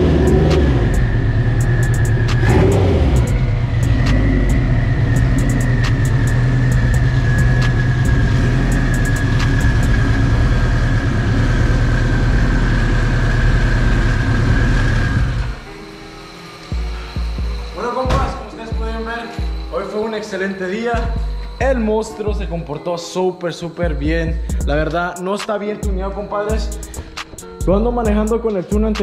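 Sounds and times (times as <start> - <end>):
turbocharged car engine idling: 0.0 - 19.6
high whine: 0.0 - 22.0.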